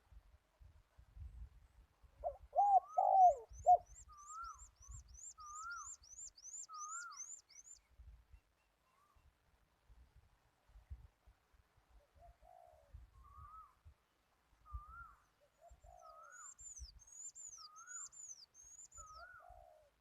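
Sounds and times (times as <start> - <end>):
dove cooing: 2.2 - 4.6, 12.2 - 13.6, 19.1 - 19.9
bird chirping high and thin: 2.6 - 7.8.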